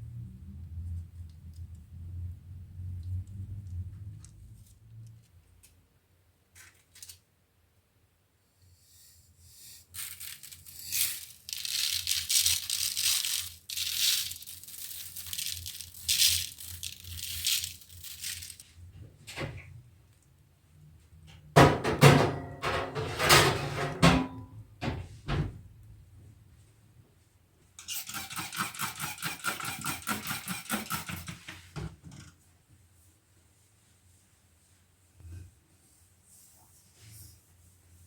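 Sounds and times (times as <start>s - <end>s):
hissy scraping and rustling: 9.0s - 18.8s.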